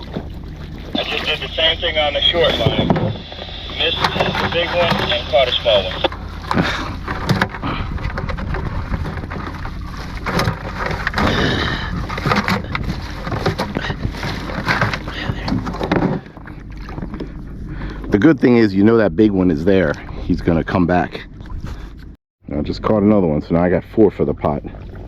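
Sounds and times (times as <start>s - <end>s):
wind rumble on microphone: 6.0s - 22.1s.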